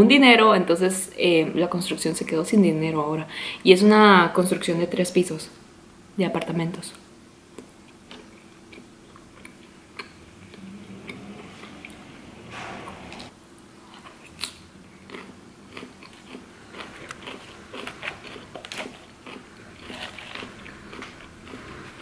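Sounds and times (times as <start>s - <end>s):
crunching and chewing salad: 7.5s - 12.1s, 13.1s - 22.0s.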